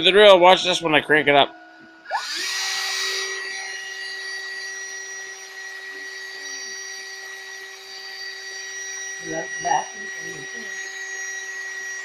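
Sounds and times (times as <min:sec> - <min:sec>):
cordless drill high whine: 0:01.8 - 0:12.0.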